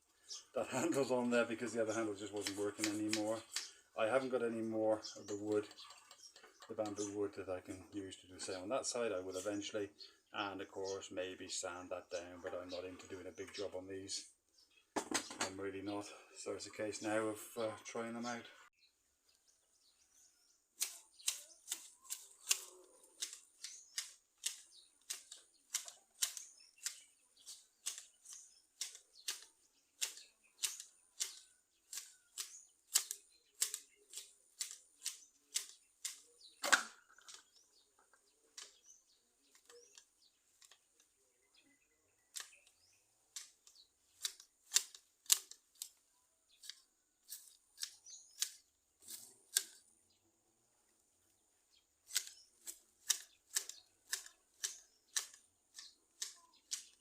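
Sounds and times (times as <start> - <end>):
hedge shears snipping: 0.7 - 4.7, 20.8 - 37.5, 42.3 - 46.0, 46.6 - 49.9, 52.0 - 57.0.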